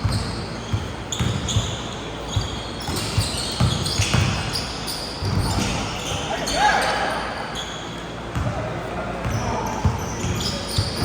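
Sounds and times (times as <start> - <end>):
basketball bouncing on court: 0.0 - 4.6, 8.3 - 8.6
sneaker squeaks: 0.0 - 8.6, 9.2 - 11.0.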